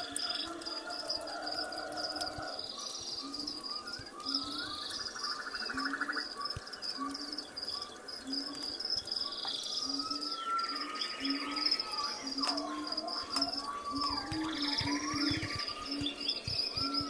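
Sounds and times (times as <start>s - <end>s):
crickets chirping trill: 0.0s - 17.0s
gliding bird-like chirps: 10.0s - 17.0s.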